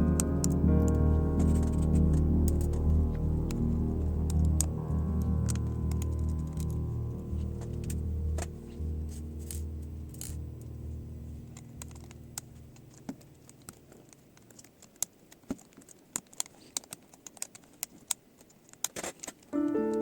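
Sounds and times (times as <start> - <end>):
background music: 0.0 - 14.1, 19.6 - 20.0.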